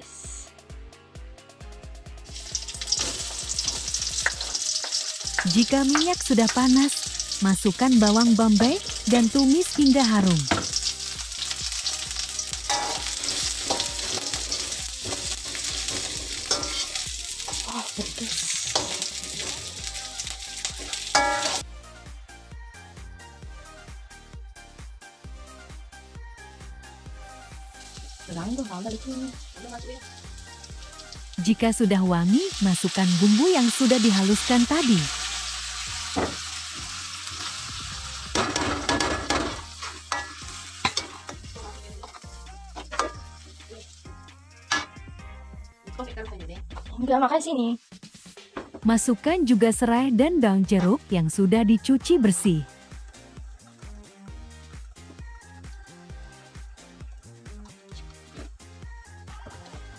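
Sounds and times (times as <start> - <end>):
onion sizzling in hot oil: 2.2 - 21.6, 27.6 - 45.0, 47.8 - 59.0
spoon scraping and tapping pan: 12.7 - 16.9, 18.7 - 19.7, 38.3 - 43.3.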